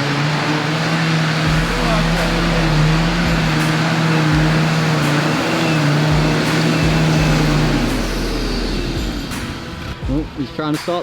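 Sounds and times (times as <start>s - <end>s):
off-road vehicle engine revving: 0.0s - 10.9s.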